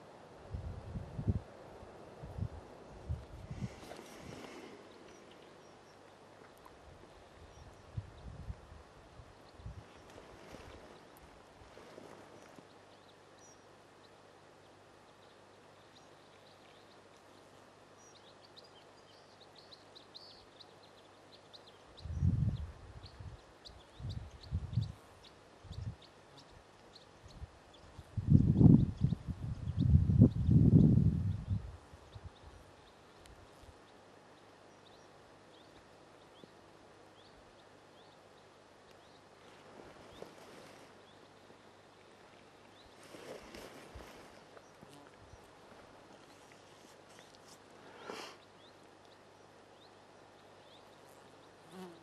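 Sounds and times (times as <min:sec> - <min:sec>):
faint click: 0:38.8 - 0:39.1, 0:48.8 - 0:49.2.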